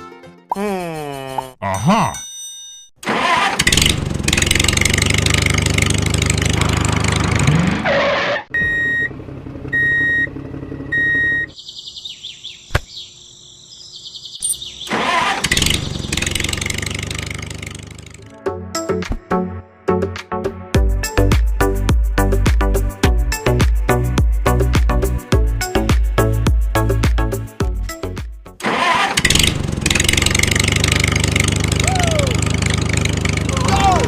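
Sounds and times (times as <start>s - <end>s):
engine running: 3.0s - 11.6s, 14.8s - 18.3s, 28.6s - 34.0s
short beeps: 8.6s - 9.1s, 9.8s - 10.3s, 10.9s - 11.5s.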